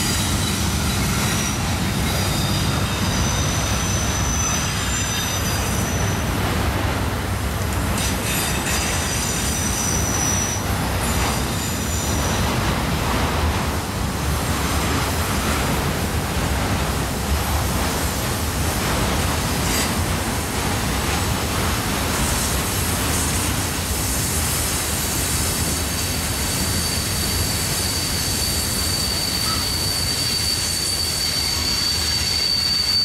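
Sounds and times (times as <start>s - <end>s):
high-pitched wheel squeals: 0.0s - 6.3s, 8.0s - 12.2s, 25.7s - 33.0s
train wheels rumbling on rail: 0.0s - 33.0s.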